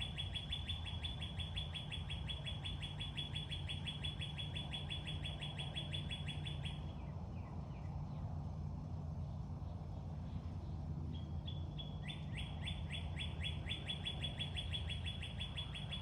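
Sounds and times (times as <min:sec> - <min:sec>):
bird chirping rapidly: 0:00.0 - 0:07.5, 0:11.1 - 0:16.0.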